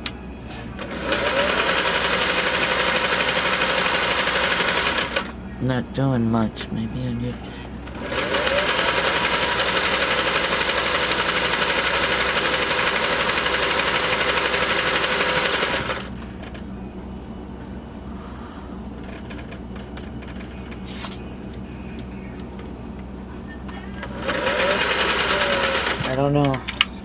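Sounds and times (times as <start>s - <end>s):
low hum: 0.0s - 27.0s
sewing machine stitching clatter: 0.8s - 5.3s, 7.9s - 16.6s, 19.0s - 21.1s, 24.0s - 26.9s.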